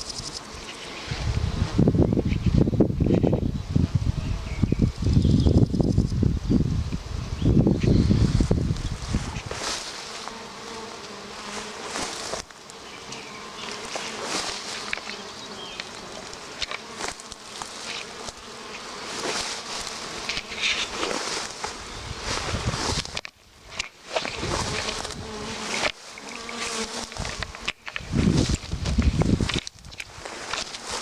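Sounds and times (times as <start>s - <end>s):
bees buzzing: 0.0s - 31.0s
rustling plants: 7.7s - 31.0s.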